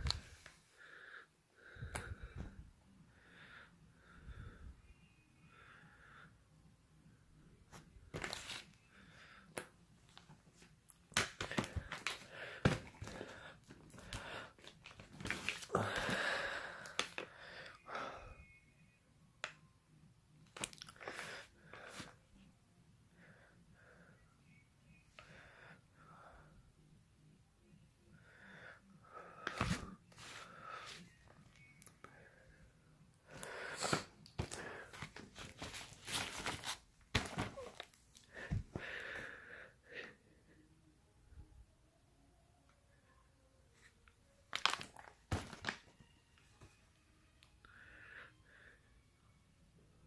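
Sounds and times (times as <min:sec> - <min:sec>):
cardboard and plastic rustling: 0:34.4 - 0:38.0, 0:44.5 - 0:45.9
packaging rustling and tearing: 0:44.5 - 0:45.8.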